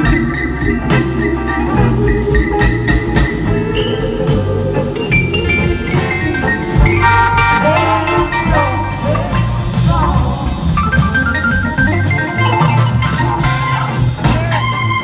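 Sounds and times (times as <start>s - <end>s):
lead melody bending in pitch: 0.0s - 9.8s
bass: 0.0s - 15.0s
drums: 0.0s - 15.0s
held chords: 0.0s - 15.0s.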